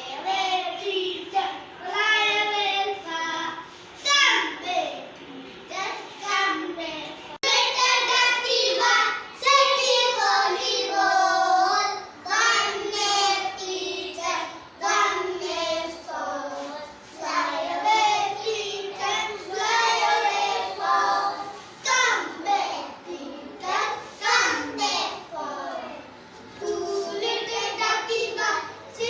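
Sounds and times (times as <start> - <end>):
children singing: 7.4 - 29.0.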